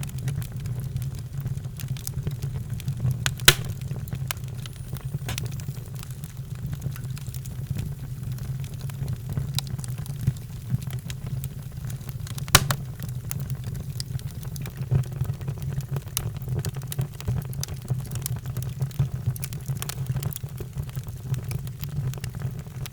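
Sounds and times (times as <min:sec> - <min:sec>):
wood fire crackling and popping: 0:00.0 - 0:22.9.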